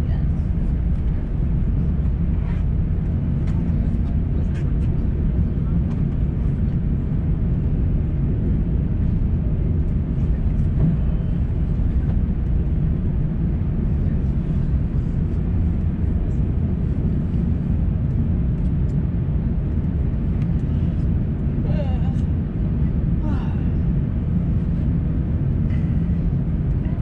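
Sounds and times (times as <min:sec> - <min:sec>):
aircraft engines idling in cabin: 0:00.0 - 0:27.0
cabin air system: 0:07.7 - 0:26.9.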